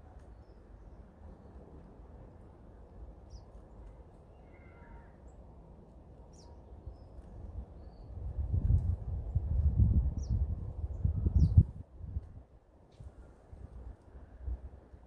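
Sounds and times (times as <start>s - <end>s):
faint bird call: 4.3s - 5.3s.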